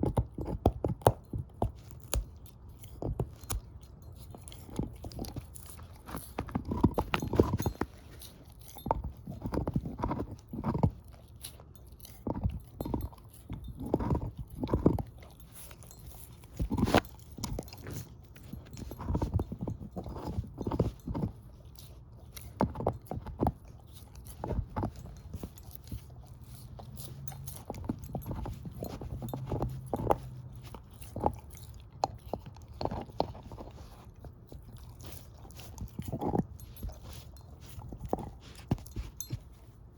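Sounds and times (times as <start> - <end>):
dog gnawing on bone: 0.0 - 39.9.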